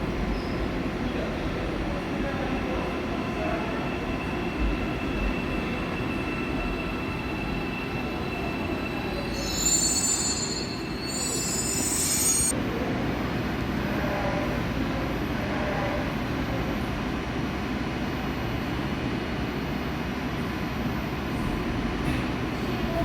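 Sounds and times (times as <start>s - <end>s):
electric train rumbling on rails: 0.0s - 23.0s
metallic wheel squeal: 5.6s - 12.5s.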